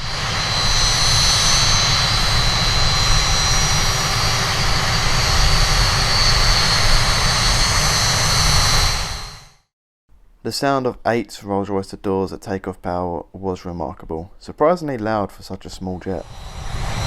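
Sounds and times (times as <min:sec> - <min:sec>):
jet engines roaring at takeoff: 0:00.0 - 0:09.5, 0:16.0 - 0:17.0.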